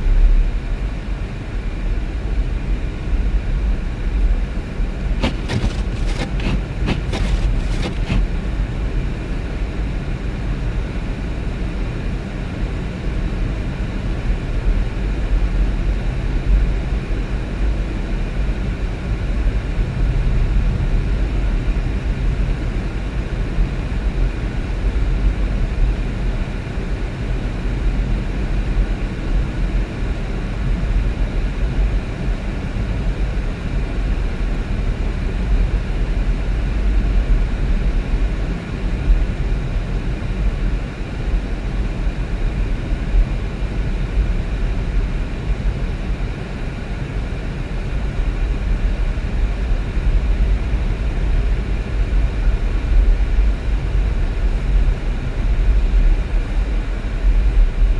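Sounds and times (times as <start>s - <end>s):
vehicle road and engine noise: 2.8s - 9.9s.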